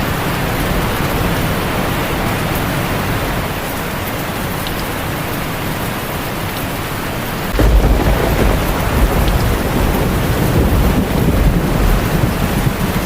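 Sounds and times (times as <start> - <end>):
heavy rain on a tin roof: 0.0 - 13.0
thunder rumbling: 7.5 - 13.0.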